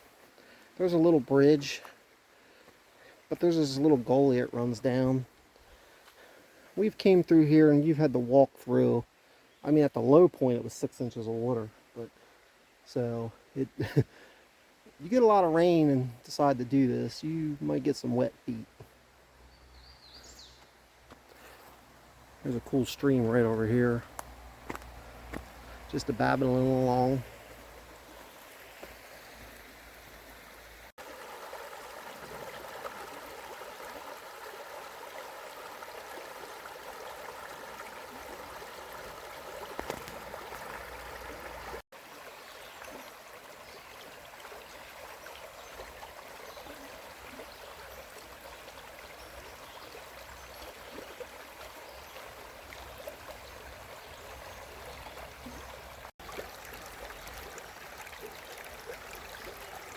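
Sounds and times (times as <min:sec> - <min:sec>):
stream babbling over rocks: 0:00.0 - 0:09.0, 0:21.4 - 0:59.9.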